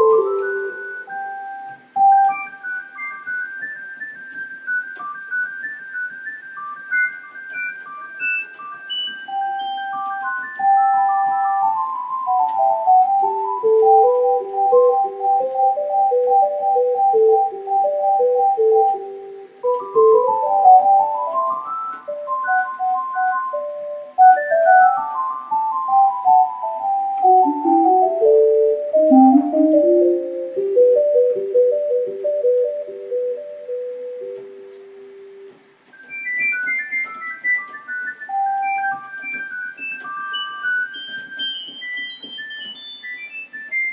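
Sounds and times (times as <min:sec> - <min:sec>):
electronic keyboard playing fast runs: 0:07.5 - 0:34.5, 0:36.1 - 0:43.9.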